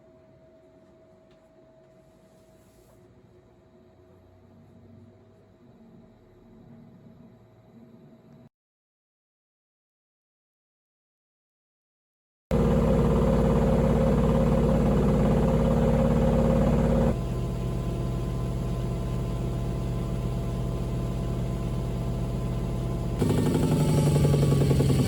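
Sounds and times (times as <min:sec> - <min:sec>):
washing machine hum: 0:12.5 - 0:25.0.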